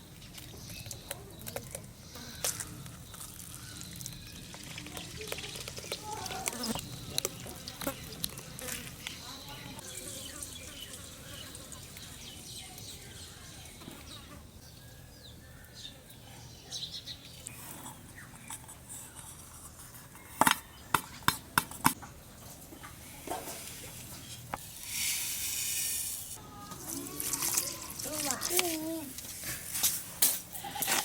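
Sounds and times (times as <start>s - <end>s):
hiss: 24.8s - 26.3s.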